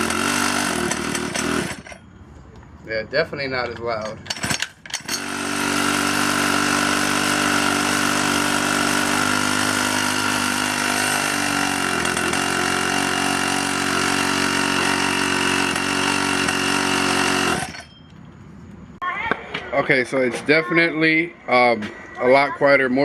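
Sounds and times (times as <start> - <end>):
small two-stroke engine running: 0.0 - 2.0, 4.3 - 17.9.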